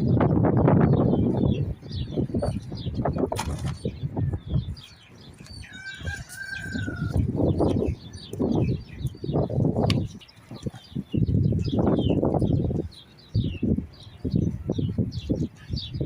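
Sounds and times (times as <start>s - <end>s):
small birds chirping: 0.0s - 16.0s
rooster crowing: 5.5s - 7.3s.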